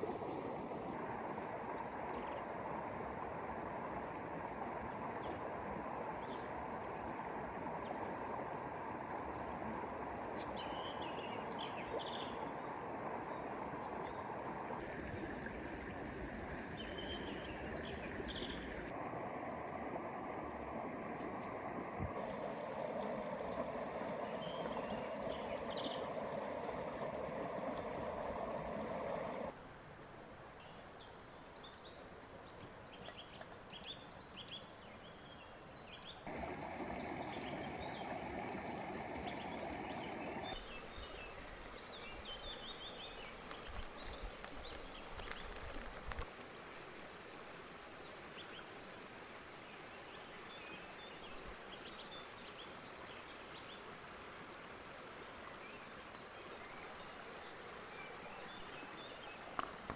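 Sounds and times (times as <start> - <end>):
creek water rushing: 0.0 - 59.9
small birds chirping: 5.0 - 7.0, 10.4 - 14.3, 16.8 - 18.9, 30.6 - 46.3.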